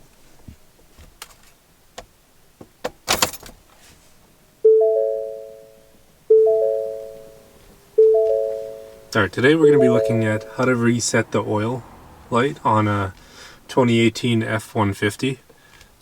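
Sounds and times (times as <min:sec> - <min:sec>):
three-note car warning chime: 0:04.6 - 0:11.0.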